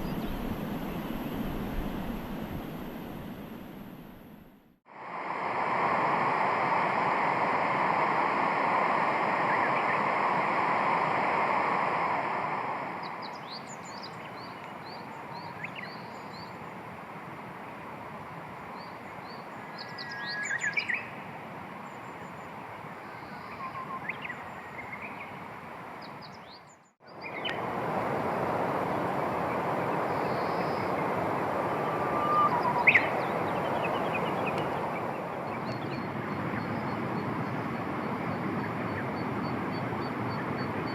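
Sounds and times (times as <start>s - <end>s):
small birds chirping: 0.0s - 3.1s, 29.4s - 40.9s
steady rushing noise: 0.0s - 15.4s, 27.1s - 40.9s.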